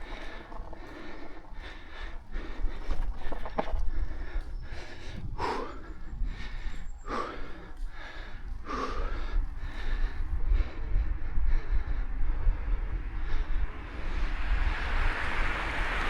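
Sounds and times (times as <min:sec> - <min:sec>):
cyclist breathing hard: 0:00.0 - 0:16.0
wind rumble on microphone: 0:00.0 - 0:16.0.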